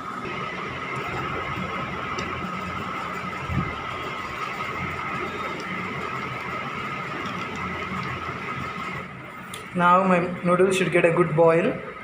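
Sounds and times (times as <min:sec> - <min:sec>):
electric kettle boiling: 0:00.0 - 0:12.0.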